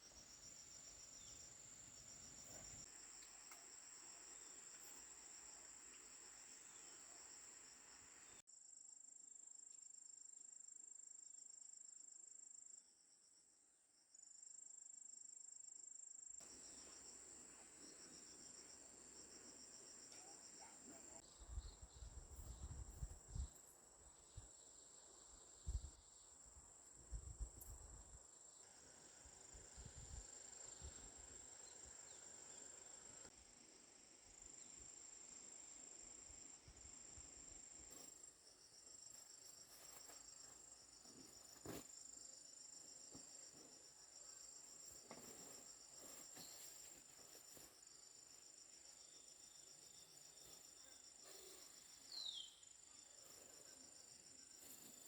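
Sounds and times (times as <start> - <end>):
insects trilling: 0.0 - 8.4, 27.6 - 55.0
pulsing insect chirp: 0.0 - 8.4, 16.4 - 55.0.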